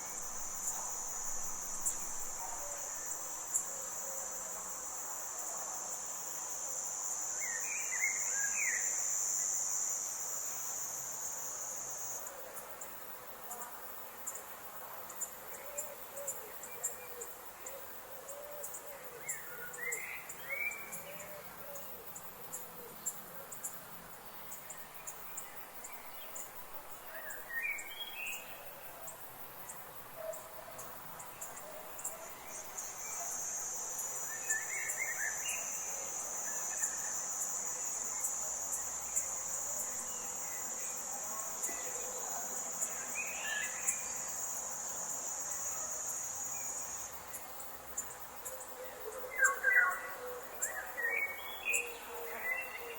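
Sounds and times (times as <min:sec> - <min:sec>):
high-pitched insect trill: 0:00.0 - 0:13.6, 0:14.2 - 0:52.9
insects chirping in high ticks: 0:00.0 - 0:52.9.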